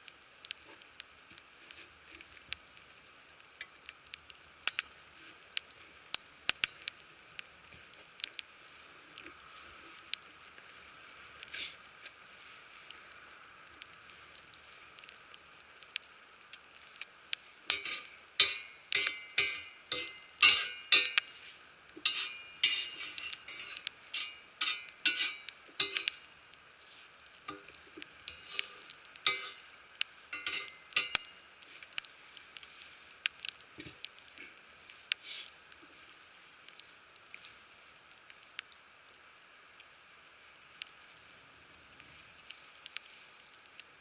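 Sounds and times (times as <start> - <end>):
food sizzling on griddle: 0.0 - 39.3
metal utensil scraping plate: 17.7 - 21.3, 22.0 - 26.2, 28.3 - 29.6, 30.4 - 31.2.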